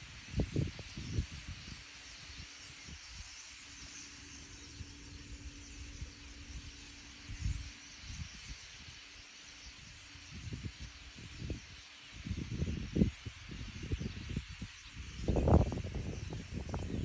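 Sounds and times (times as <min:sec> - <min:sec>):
wind buffeting microphone: 0:00.0 - 0:01.8, 0:10.3 - 0:17.0
distant flock of birds chattering: 0:01.7 - 0:17.0.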